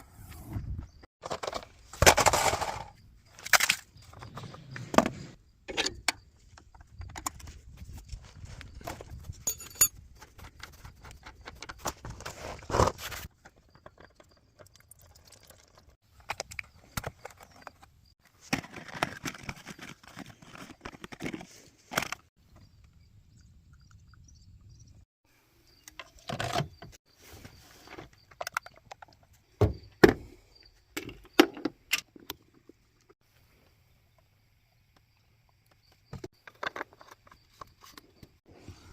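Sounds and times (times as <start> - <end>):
tools clinking and clattering: 8.8 - 10.7.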